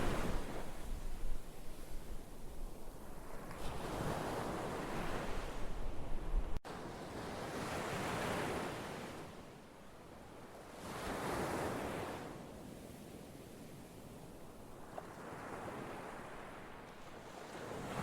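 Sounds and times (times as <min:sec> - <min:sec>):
waves breaking: 0:00.0 - 0:06.0.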